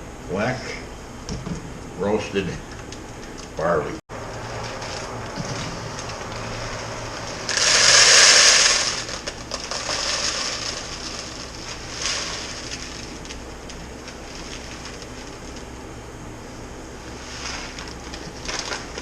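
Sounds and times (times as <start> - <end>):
grain poured into bag: 4.4 - 15.6, 17.0 - 19.0.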